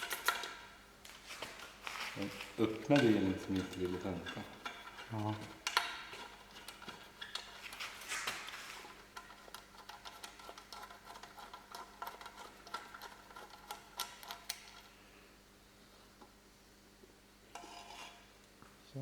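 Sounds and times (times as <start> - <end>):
metallic clicks of hand tools: 0.0 - 0.6.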